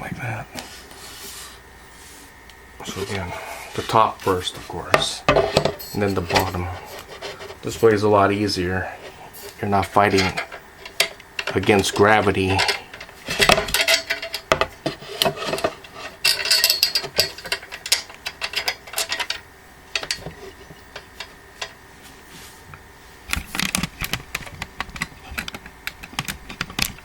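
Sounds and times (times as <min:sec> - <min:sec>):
metal parts clicking on wood: 0:10.0 - 0:21.8.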